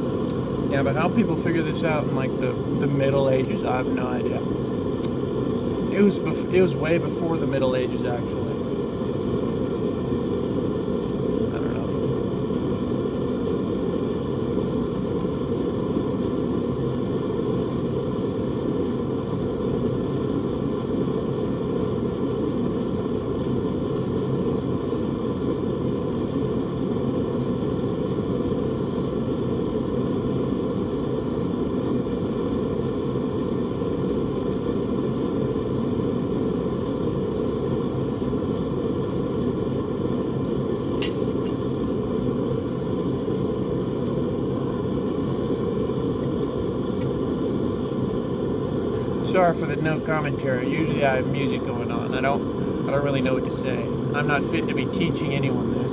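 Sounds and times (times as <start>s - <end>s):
sharp click: 40.9s - 41.6s.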